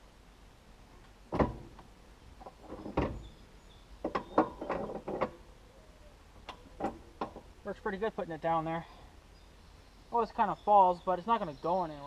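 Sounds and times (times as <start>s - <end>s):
metal hitch pin clanking: 1.3s - 3.4s, 4.0s - 5.5s, 6.4s - 7.5s.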